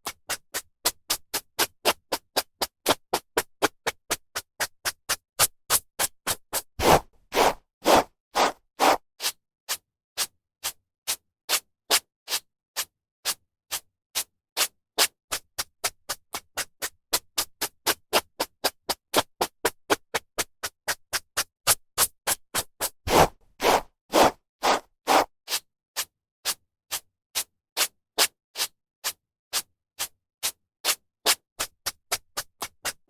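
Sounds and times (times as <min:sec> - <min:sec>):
hairbrush swishing through hair: 0:06.8 - 0:09.0, 0:23.1 - 0:25.3.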